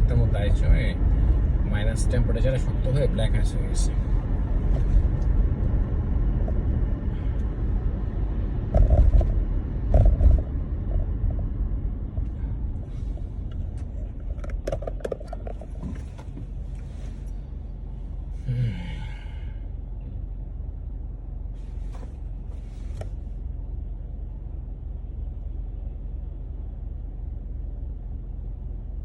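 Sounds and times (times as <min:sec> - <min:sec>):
car cabin road rumble: 0:00.0 - 0:29.0
car thumping over bumps: 0:08.6 - 0:16.7
clicks and rattles: 0:13.5 - 0:16.4.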